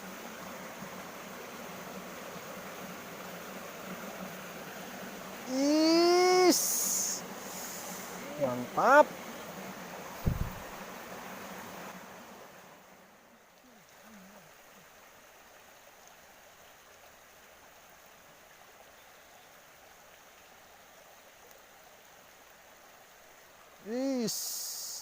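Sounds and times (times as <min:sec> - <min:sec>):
stream water flowing over rocks: 0:00.0 - 0:25.0.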